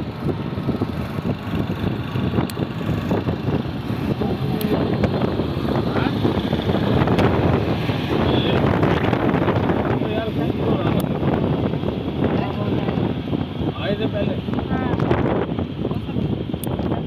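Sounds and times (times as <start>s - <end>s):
train rumbling: 0.0s - 13.5s
indistinct voices: 3.2s - 11.6s.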